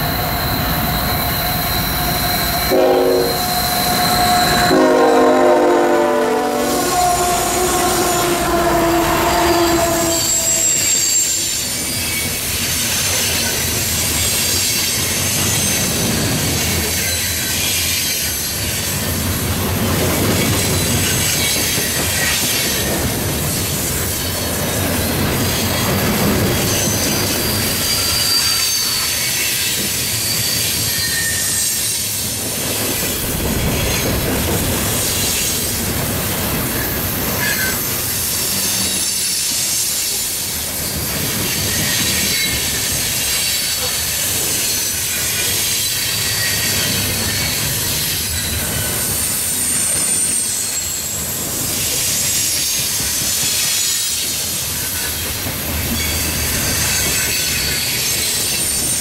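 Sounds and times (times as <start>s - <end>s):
high wheel squeals: 0.0s - 16.2s, 23.6s - 32.4s, 36.7s - 55.1s
locomotive horn blasts: 1.8s - 11.5s.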